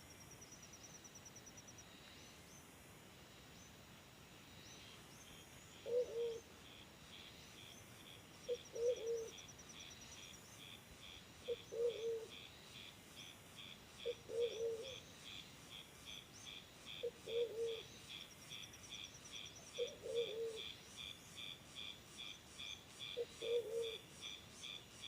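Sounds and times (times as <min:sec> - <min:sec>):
high insect chirping: 0:04.3 - 0:25.0
low cooing bird call: 0:05.8 - 0:06.5, 0:08.4 - 0:09.5, 0:11.5 - 0:12.4, 0:14.0 - 0:15.1, 0:17.0 - 0:17.9, 0:19.7 - 0:20.7, 0:23.2 - 0:24.0.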